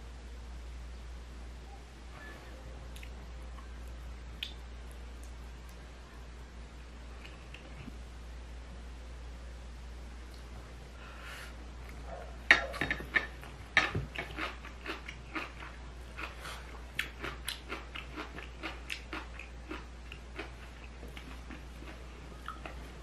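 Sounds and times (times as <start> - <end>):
low electrical hum: 0.0 - 23.0
crunchy chewing: 13.0 - 23.0.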